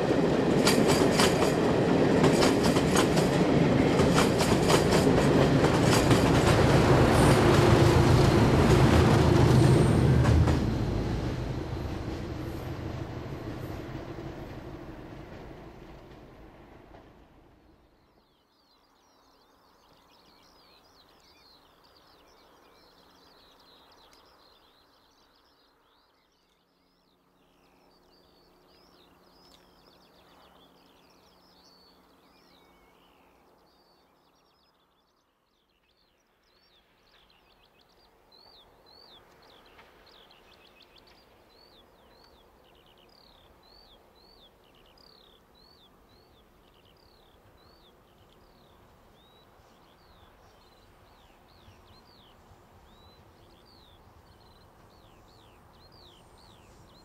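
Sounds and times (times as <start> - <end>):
soft outdoor hush: 0.0 - 57.0
small birds chirping and singing: 17.9 - 57.0.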